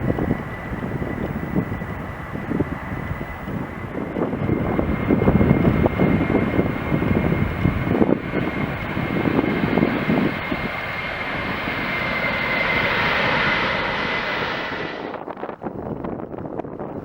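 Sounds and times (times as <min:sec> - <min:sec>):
jet engines roaring: 0:00.0 - 0:16.5.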